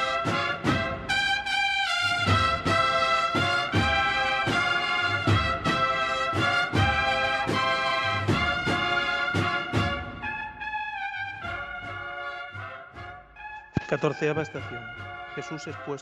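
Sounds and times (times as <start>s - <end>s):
drum strokes: 0.0s - 10.6s
brass band playing a march: 0.0s - 16.0s.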